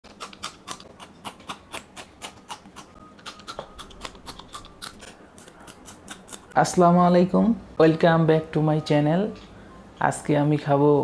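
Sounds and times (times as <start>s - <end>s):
chillies crunching when chewed: 0.0s - 6.6s.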